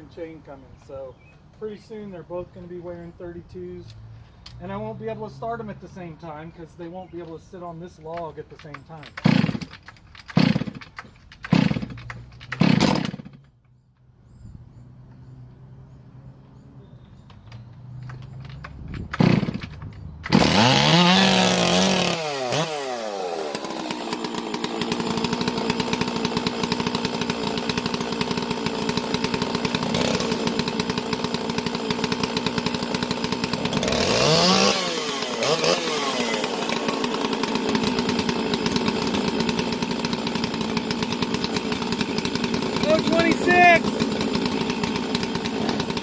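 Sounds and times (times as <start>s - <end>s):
chainsaw starting and revving: 8.2s - 13.5s, 18.0s - 46.0s.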